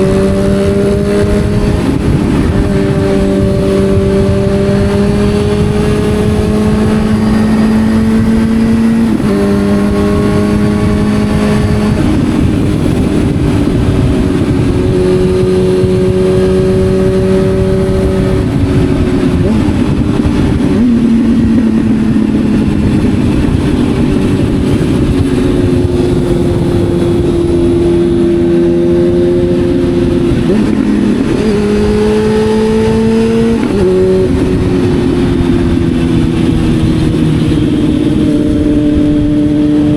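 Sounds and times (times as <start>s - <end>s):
motorcycle engine under load: 0.0s - 39.9s
wind rush: 0.0s - 39.9s.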